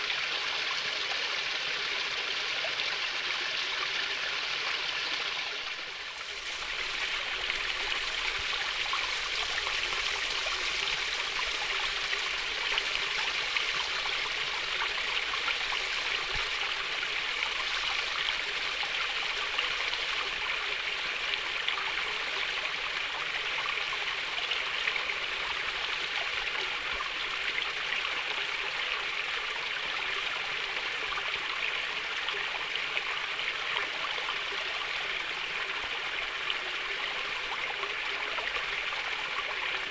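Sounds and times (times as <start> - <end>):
water babbling over stones: 0.0 - 39.9.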